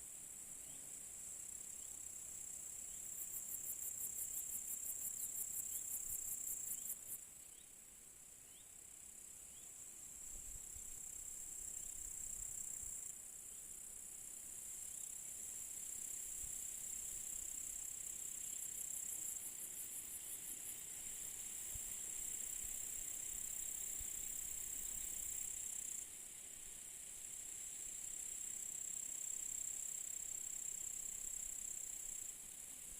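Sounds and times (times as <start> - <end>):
crickets chirring: 0.1 - 32.9.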